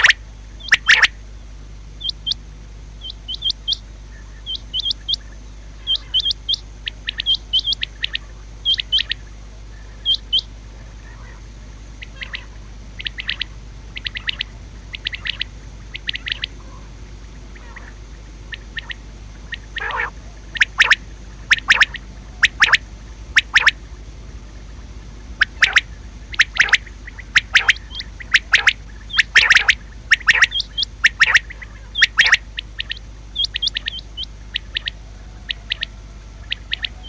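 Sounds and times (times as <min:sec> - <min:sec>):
quail calling: 0:00.0 - 0:01.2, 0:02.0 - 0:02.4, 0:03.0 - 0:24.0, 0:24.7 - 0:37.0.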